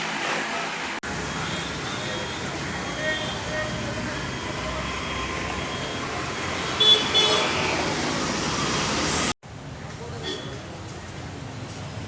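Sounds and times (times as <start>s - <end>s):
street and crowd noise: 1.0s - 12.0s
horn toots: 5.7s - 7.8s.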